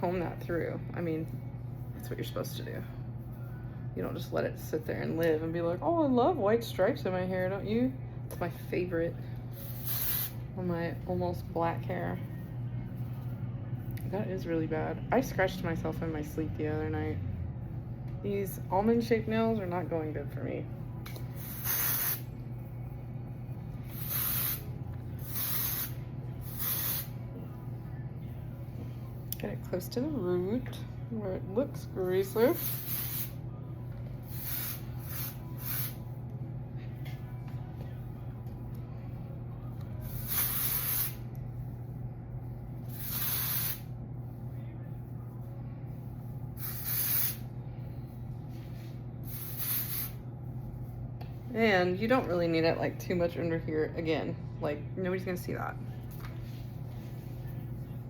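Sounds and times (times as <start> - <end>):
aerosol spray hissing: 9.6 - 10.4, 21.4 - 22.3, 23.9 - 27.1, 32.5 - 33.3, 34.3 - 36.0, 40.1 - 41.2, 42.9 - 43.8, 46.6 - 47.4, 49.3 - 50.2.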